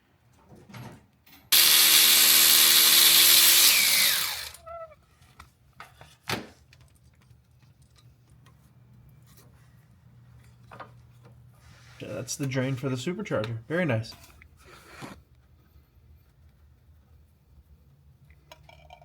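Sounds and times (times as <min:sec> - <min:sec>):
cordless power tool whining: 0:01.5 - 0:04.6.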